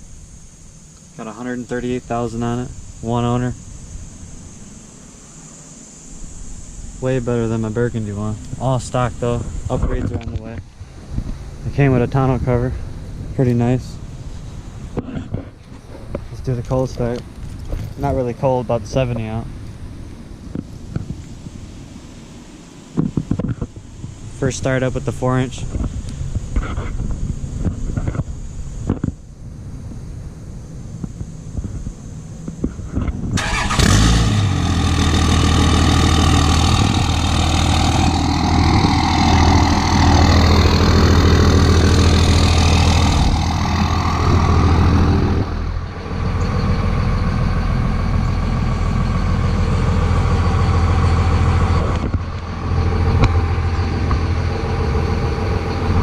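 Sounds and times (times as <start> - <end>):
diesel engine starting: 33.3 - 56.0
diesel engine idling: 33.4 - 56.0.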